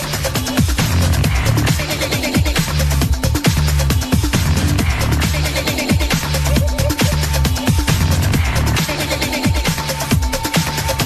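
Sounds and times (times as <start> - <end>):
techno kick drum: 0.0 - 11.0
held high synth tone: 6.4 - 7.7.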